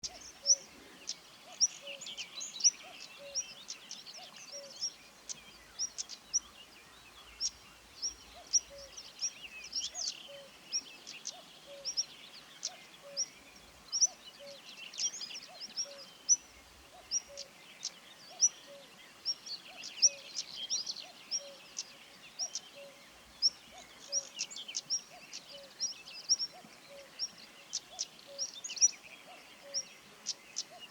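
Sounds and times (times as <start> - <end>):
bird singing short phrases: 0.0 - 30.9
sharp ticking bird calls: 0.0 - 30.9
cuckoo calling: 8.4 - 9.0, 26.5 - 27.2.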